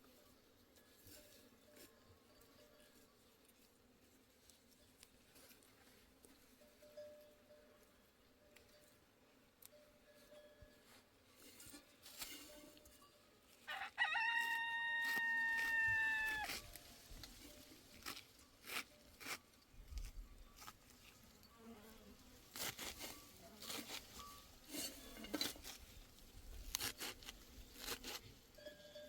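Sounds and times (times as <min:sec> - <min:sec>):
rooster crowing: 0:13.7 - 0:16.6.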